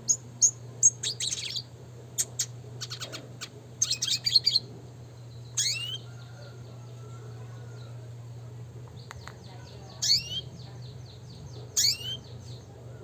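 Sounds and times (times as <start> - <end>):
bird singing chirps and twitters: 0.0 - 8.0, 8.8 - 13.0
steady low hum: 0.0 - 13.0.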